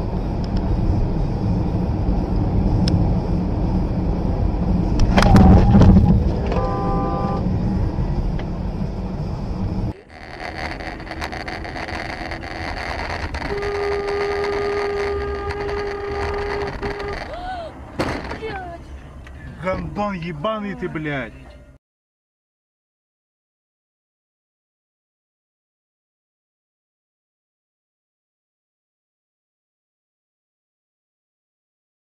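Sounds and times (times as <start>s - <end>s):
car road and engine noise: 0.0s - 21.8s
traffic noise: 0.0s - 21.8s
car horn blast: 5.1s - 7.4s, 13.4s - 17.3s.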